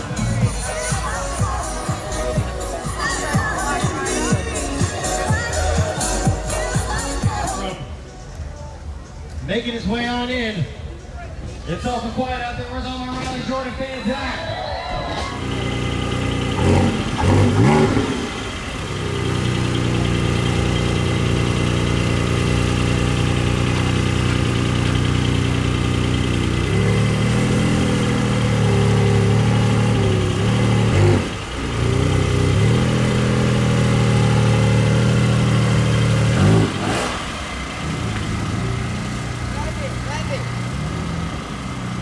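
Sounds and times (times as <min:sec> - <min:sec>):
sports car engine revving: 0:15.3 - 0:42.0.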